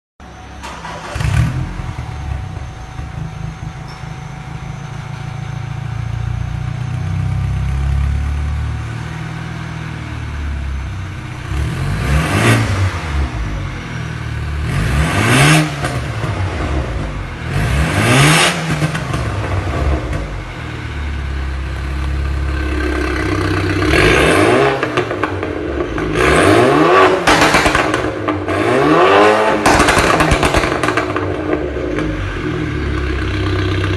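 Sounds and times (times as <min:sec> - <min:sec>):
car engine idling and revving: 0:00.2 - 0:33.9
crackling exhaust pops: 0:27.2 - 0:28.4, 0:29.6 - 0:32.1.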